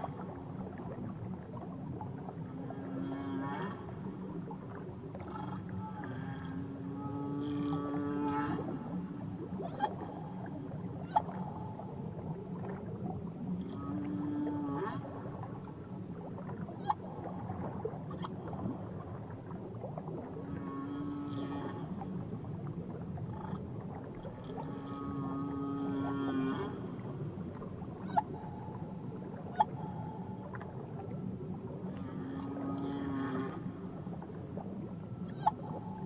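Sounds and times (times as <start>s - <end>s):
whale calls: 5.2s - 12.0s, 24.5s - 30.6s, 31.8s - 34.0s, 35.2s - 36.0s.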